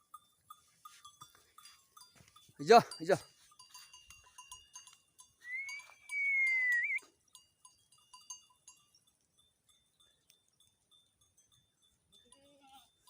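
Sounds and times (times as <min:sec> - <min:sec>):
faint bells tinkling: 0:00.0 - 0:13.0
long high whistle: 0:05.4 - 0:07.0.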